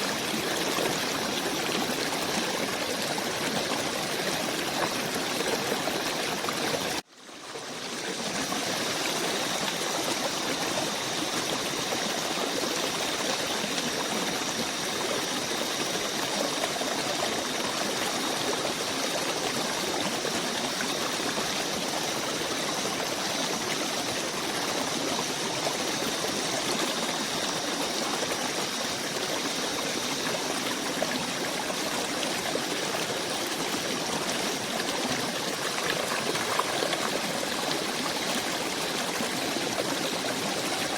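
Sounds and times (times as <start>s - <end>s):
forest stream running: 0.0s - 40.9s.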